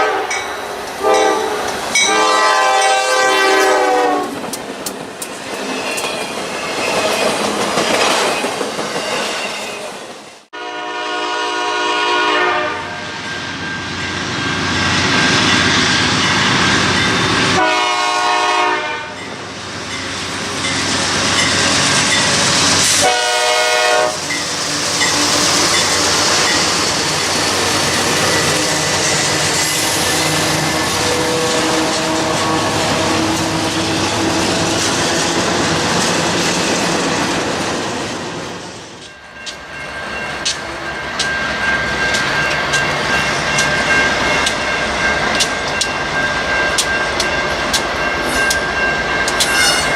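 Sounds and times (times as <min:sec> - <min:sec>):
locomotive air horn blasts: 0:00.0 - 0:00.4, 0:01.0 - 0:04.4, 0:10.5 - 0:13.2, 0:17.5 - 0:19.2, 0:22.8 - 0:24.3
train wheels on rails: 0:00.0 - 0:10.5, 0:13.0 - 0:49.9.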